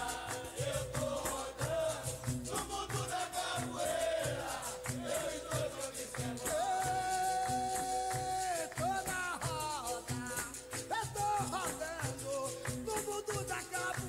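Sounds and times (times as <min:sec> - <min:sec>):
chorus of voices singing: 0:00.0 - 0:09.1
hand drums beating: 0:00.0 - 0:14.0
shaken rattle: 0:00.0 - 0:14.0.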